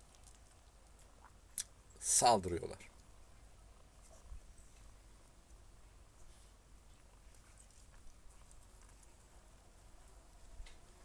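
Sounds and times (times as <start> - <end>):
faint soft ticks: 10.0 - 11.0.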